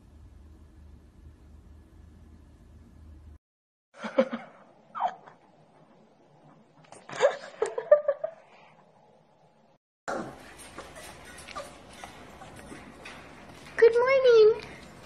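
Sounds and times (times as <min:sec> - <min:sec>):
person laughing: 0:04.0 - 0:05.3, 0:07.0 - 0:08.4.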